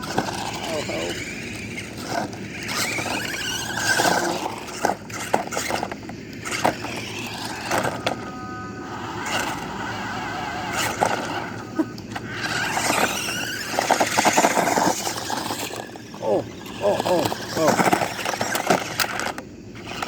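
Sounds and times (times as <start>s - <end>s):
small electric motors whining: 0.0s - 20.0s
wheels clicking and scraping: 0.0s - 20.0s.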